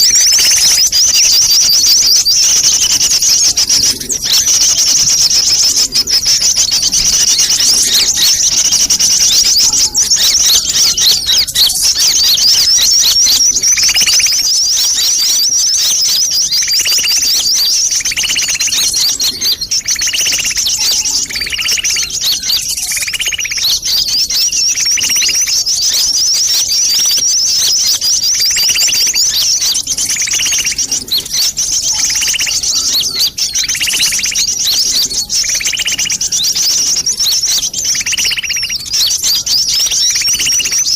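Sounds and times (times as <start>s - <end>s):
lower bird call: 0.0s - 40.9s
rapid high-pitched bird twittering: 0.0s - 40.9s.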